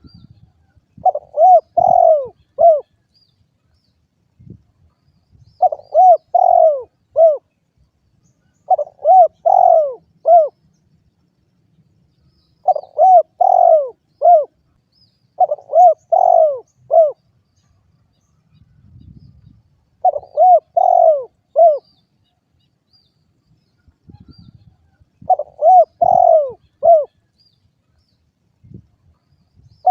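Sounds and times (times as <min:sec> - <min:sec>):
dove cooing: 0:01.0 - 0:03.0, 0:05.6 - 0:07.5, 0:08.7 - 0:10.6, 0:12.6 - 0:14.6, 0:15.4 - 0:17.2, 0:20.0 - 0:21.9, 0:25.2 - 0:27.3.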